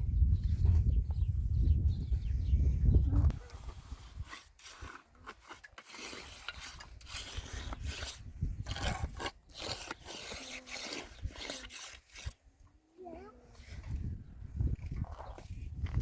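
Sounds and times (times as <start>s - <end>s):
scraping strokes: 3.4s - 12.4s.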